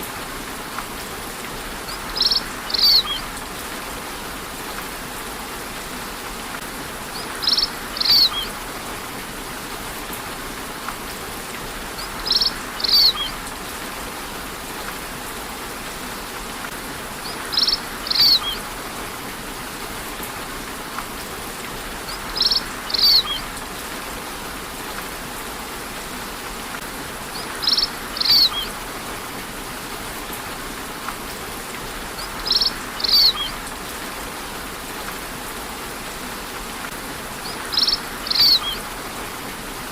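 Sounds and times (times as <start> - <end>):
steady rain: 0.0 - 39.9
bird calling high notes: 37.6 - 38.8.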